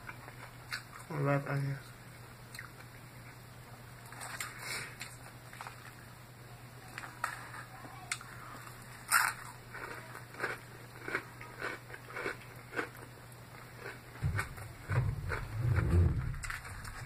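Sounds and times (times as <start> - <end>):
crunchy salad chewing: 0.0 - 1.1, 4.0 - 6.0, 7.0 - 17.0.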